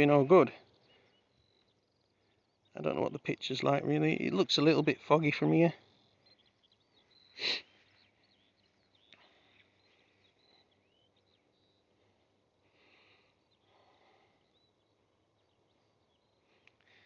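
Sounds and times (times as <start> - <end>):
faint birds chirping: 0.0 - 17.0
short rushing sniff-like sound: 7.4 - 7.7.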